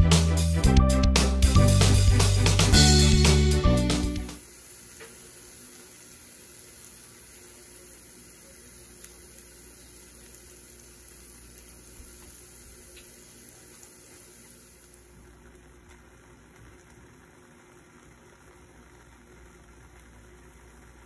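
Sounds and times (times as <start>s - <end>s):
food sizzling in a pan: 1.5s - 21.0s.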